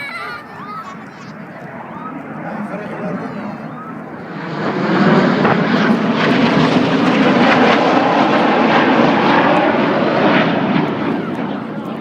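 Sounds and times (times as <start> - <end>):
aircraft engine flying past: 0.0 - 12.0.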